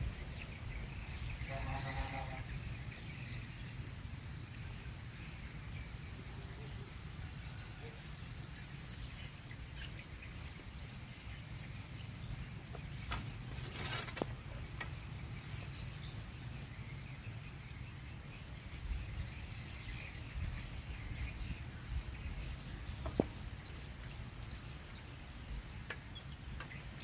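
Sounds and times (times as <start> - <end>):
light rain pattering: 0.0 - 27.0.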